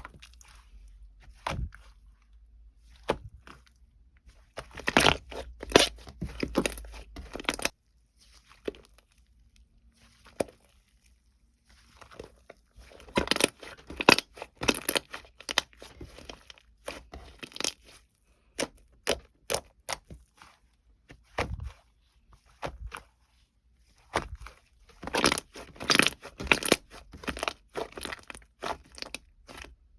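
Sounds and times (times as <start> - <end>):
crinkling tearing and crunching: 4.6 - 18.0, 24.1 - 29.8.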